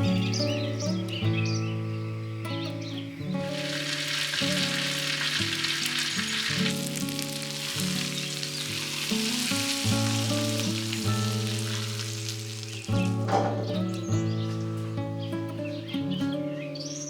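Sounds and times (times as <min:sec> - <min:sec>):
soft melodic music: 0:00.0 - 0:17.0
food sizzling in a pan: 0:03.4 - 0:14.9.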